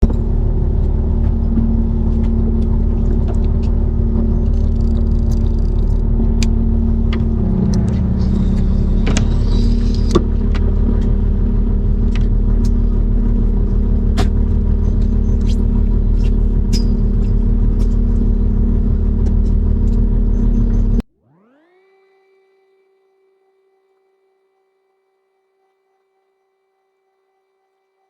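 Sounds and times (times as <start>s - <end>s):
sharp clicks and knocks: 0.0s - 21.0s
boat engine droning: 0.0s - 21.7s.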